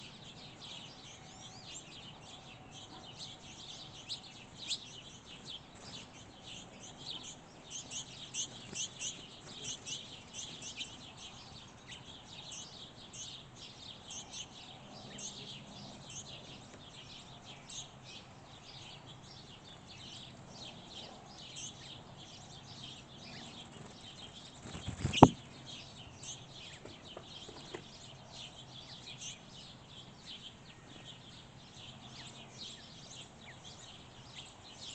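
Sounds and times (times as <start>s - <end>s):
small birds chirping: 0.0s - 34.9s
sharp knock: 25.0s - 25.4s.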